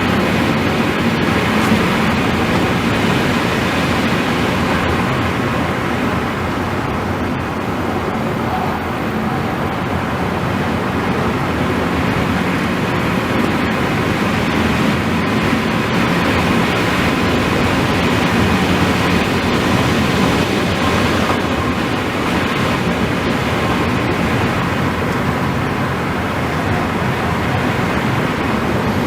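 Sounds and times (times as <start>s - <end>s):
car driving at high speed: 0.0s - 29.0s.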